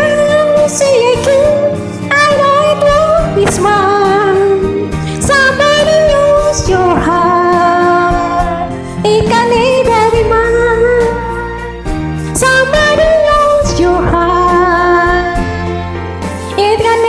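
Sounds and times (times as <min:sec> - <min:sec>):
karaoke backing track: 0:00.0 - 0:17.0
woman singing a ballad: 0:00.0 - 0:17.0.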